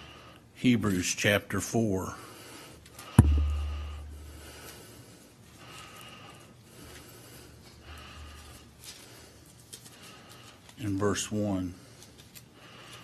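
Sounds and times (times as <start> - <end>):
sharp knock with boomy thud: 3.2 - 4.3.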